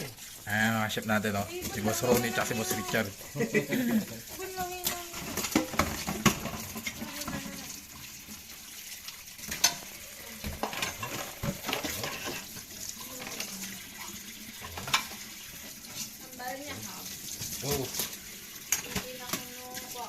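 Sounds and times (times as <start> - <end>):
pots and utensils clattering: 0.0 - 20.0
water running at a sink: 0.0 - 20.0.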